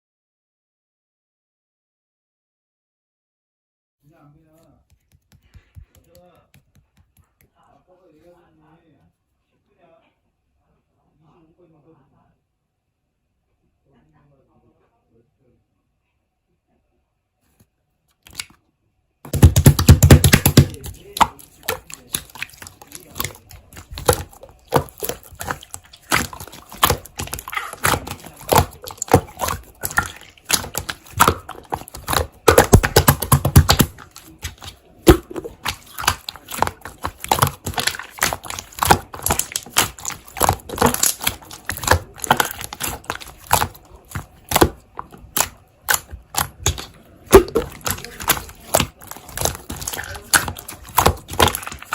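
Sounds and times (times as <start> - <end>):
loud slime squishes: 18.2 - 18.6, 19.3 - 51.9
slime clicking and popping: 18.3 - 18.5, 19.3 - 51.9.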